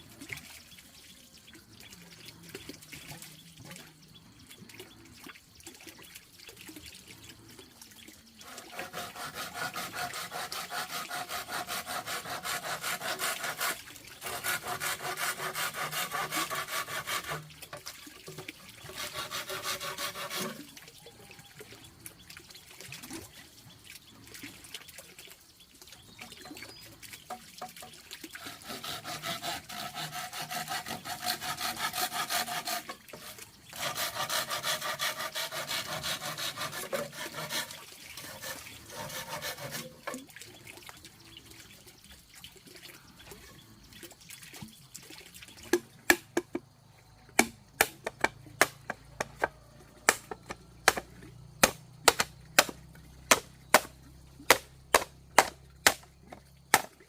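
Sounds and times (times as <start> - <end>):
hand saw cutting wood: 8.4 - 18.0, 18.8 - 20.7, 28.4 - 40.3, 47.4 - 53.9, 54.5 - 56.0, 56.7 - 56.9.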